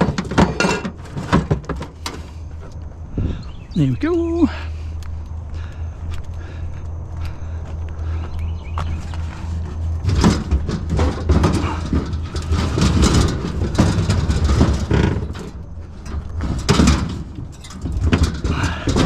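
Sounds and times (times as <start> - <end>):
scrap clattering and knocking: 0.0 - 2.8, 8.9 - 19.0
idling vehicle engine hum: 1.8 - 19.0.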